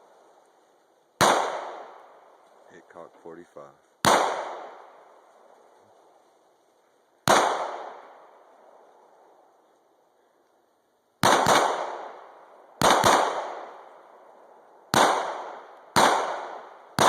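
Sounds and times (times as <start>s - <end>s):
echoing gunshots: 1.2s - 2.3s, 4.0s - 5.2s, 7.2s - 8.8s, 11.2s - 14.1s, 14.9s - 17.0s.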